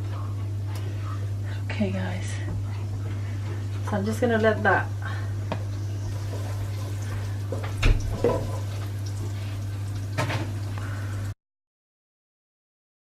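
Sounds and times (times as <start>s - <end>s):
garlic sizzling in a frying pan: 3.8s - 11.3s.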